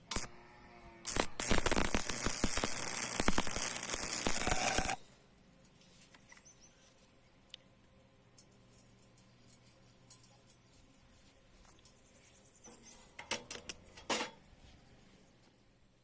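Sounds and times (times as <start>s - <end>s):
welding arc crackling: 0.0s - 0.3s, 1.0s - 5.0s.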